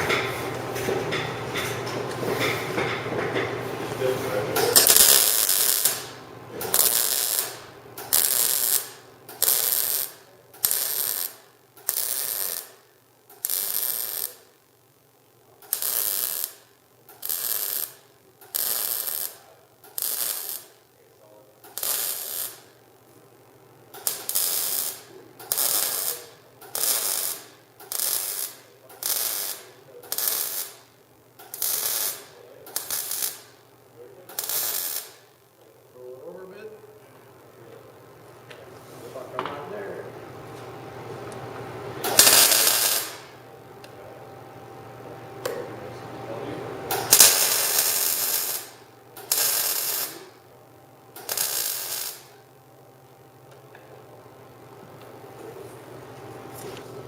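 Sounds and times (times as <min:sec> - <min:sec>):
welder arc bursts: 0:04.5 - 0:35.6, 0:42.0 - 0:43.5, 0:45.4 - 0:52.6.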